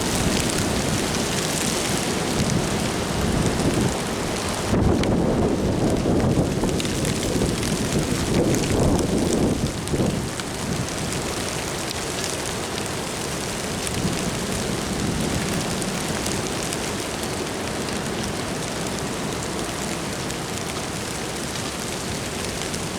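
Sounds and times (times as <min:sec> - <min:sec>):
wind rushing over microphone: 0:00.0 - 0:11.4.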